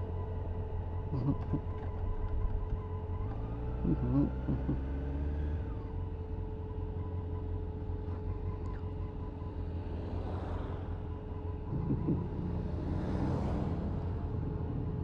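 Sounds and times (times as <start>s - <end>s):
wind and road noise: 8.8s - 15.0s.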